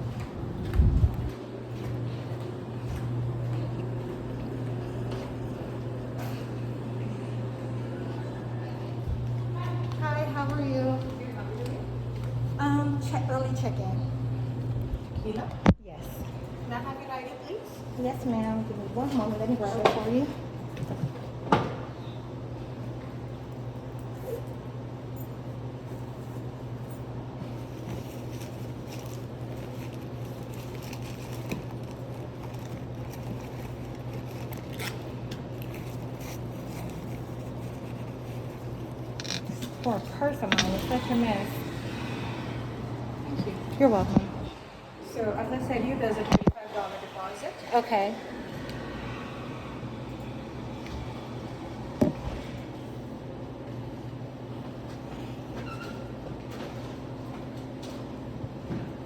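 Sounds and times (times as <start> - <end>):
steady low hum: 0.0 - 59.0
rustling in a purse: 27.5 - 41.4.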